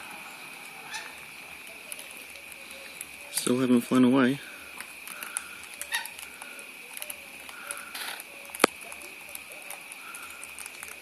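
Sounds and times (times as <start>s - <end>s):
small birds chirping: 0.1s - 11.0s.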